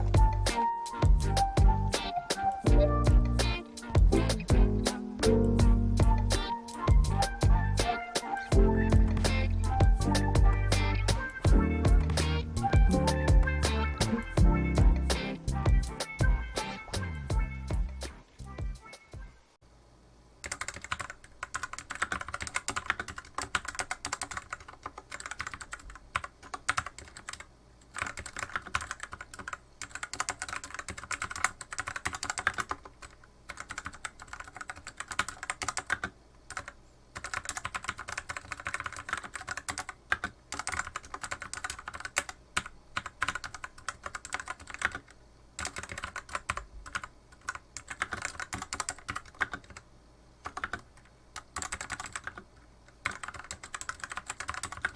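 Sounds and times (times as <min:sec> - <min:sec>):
mechanical keyboard typing: 0:20.4 - 0:49.8, 0:50.4 - 0:54.9.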